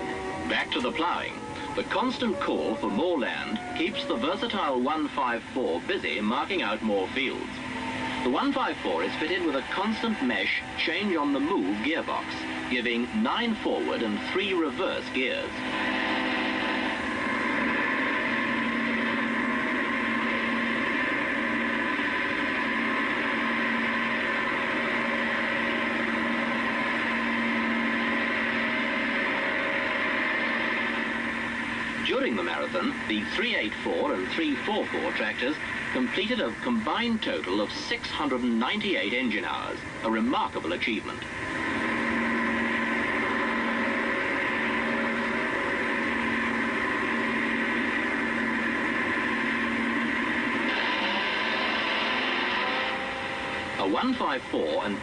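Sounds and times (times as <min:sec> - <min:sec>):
tractor engine droning: 0:00.0 - 0:55.0.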